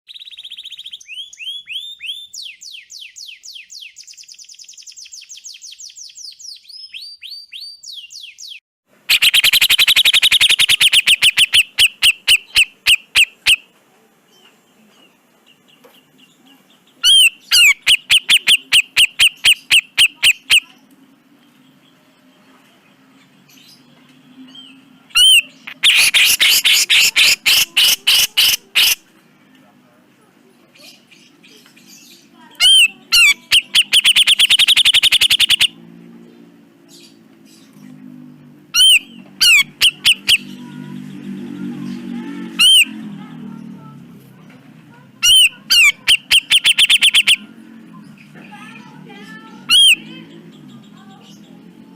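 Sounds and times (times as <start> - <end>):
bird calling: 7.6 - 13.7, 16.7 - 20.8, 25.1 - 29.0, 32.4 - 35.8, 38.7 - 40.8, 42.4 - 43.0, 45.2 - 47.6, 49.6 - 51.4.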